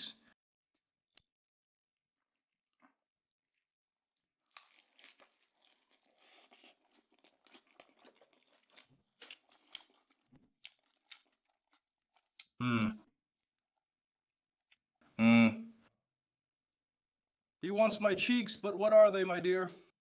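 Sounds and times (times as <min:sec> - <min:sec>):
person chewing food: 0:04.4 - 0:12.6.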